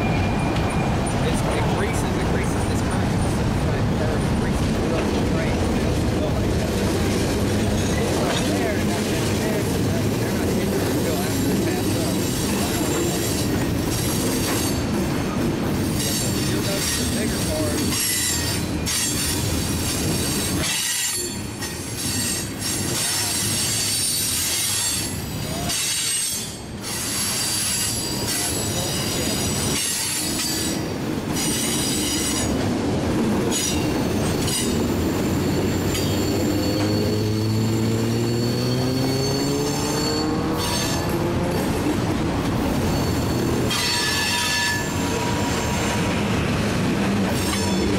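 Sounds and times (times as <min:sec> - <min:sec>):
steel wheels squealing on rail: 0:00.0 - 0:03.0, 0:07.0 - 0:32.8, 0:33.4 - 0:47.9
freight train cars rumbling: 0:00.0 - 0:47.9.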